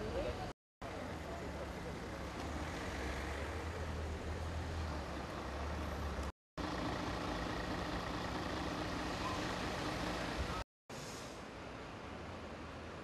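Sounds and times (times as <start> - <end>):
outdoor background noise: 0.0 - 13.0
vehicle engine humming: 0.8 - 10.6.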